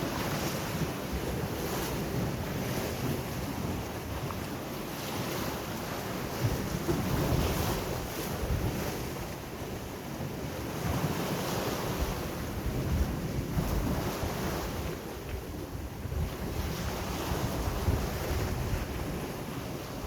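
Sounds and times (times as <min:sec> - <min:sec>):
sea waves washing ashore: 0:00.0 - 0:20.0
wind buffeting microphone: 0:05.2 - 0:20.0.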